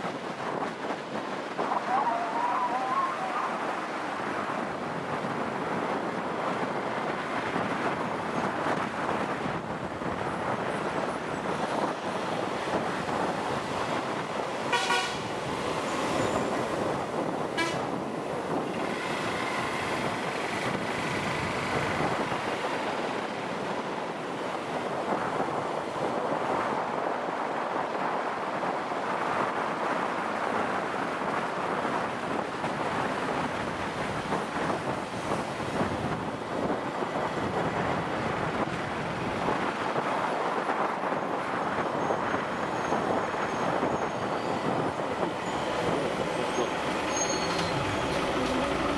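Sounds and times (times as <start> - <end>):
motorcycle wind and road noise: 0.0 - 48.9
vehicle horn toots: 14.7 - 15.3, 17.6 - 18.0.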